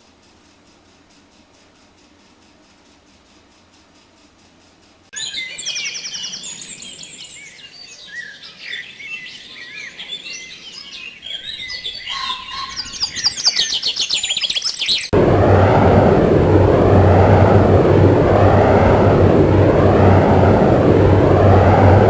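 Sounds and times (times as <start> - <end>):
birdsong chirps and trills: 5.2 - 15.2
engine drone: 15.1 - 22.0.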